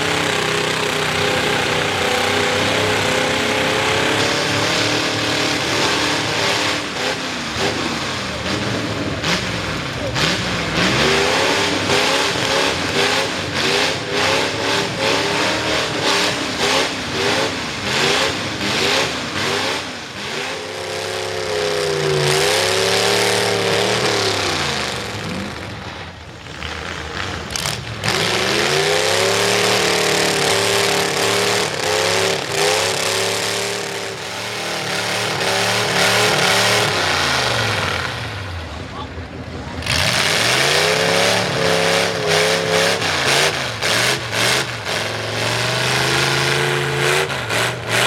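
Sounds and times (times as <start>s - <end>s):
truck engine revving hard: 0.0s - 48.0s.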